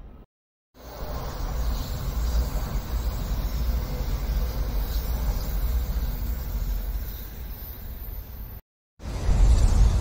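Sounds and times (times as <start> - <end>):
train running past: 0.8 - 8.4.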